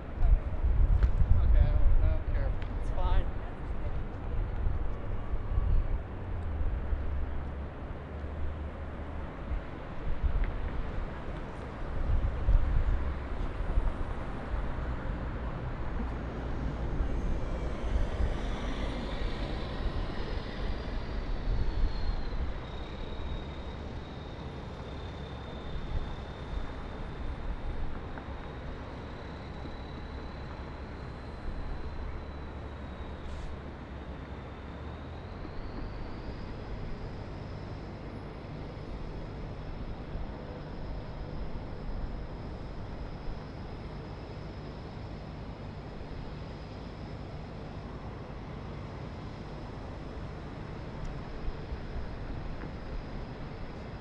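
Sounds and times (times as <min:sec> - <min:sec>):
distant traffic rumble: 0:00.0 - 0:54.0
faint high whine: 0:00.0 - 0:54.0.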